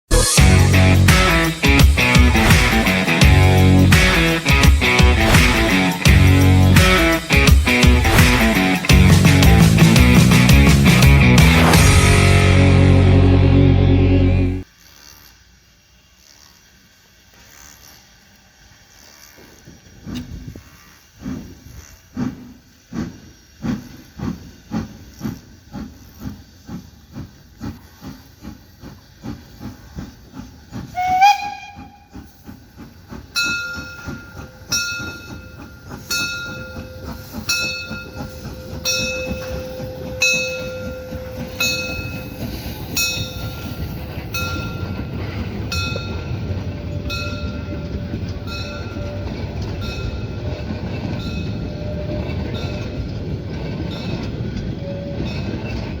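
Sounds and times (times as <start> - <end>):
steam locomotive exhaust chuffing: 0.1 - 14.7, 16.7 - 56.0
train rumble: 0.1 - 14.7, 19.7 - 56.0
train wheels clicking over rail joints: 0.4 - 12.5, 15.9 - 56.0
steam whistle blast: 30.9 - 32.3.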